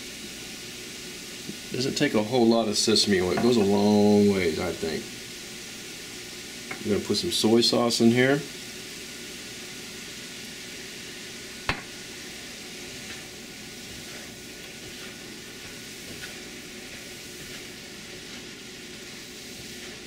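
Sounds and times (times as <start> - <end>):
food sizzling in a wok: 0.0 - 20.0
spatula scraping a pan: 12.1 - 20.0.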